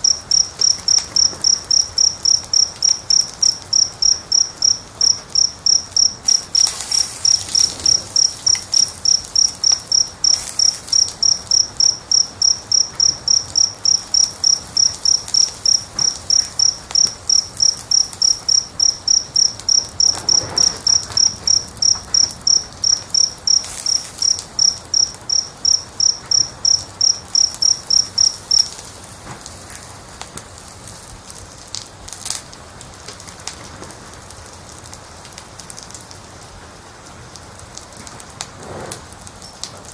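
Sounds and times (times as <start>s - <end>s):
cricket chirping: 0.0s - 29.6s
soft crackles: 0.0s - 36.0s, 37.0s - 39.9s
faint hiss: 0.0s - 39.9s.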